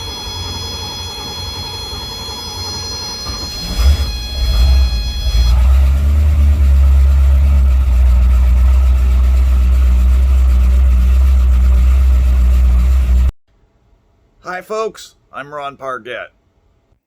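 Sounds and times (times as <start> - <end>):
engine running with deep rumble: 0.0 - 13.4.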